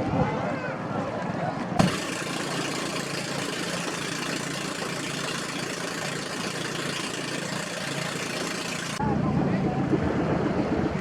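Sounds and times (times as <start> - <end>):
boat engine running: 1.7 - 9.2.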